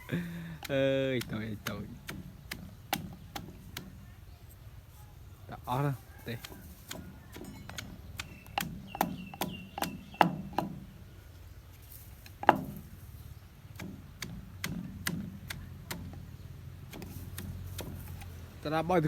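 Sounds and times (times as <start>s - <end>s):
sharp wooden knocks: 0.6s - 4.0s, 6.4s - 10.9s, 12.3s - 13.0s, 13.7s - 16.3s, 16.9s - 18.3s.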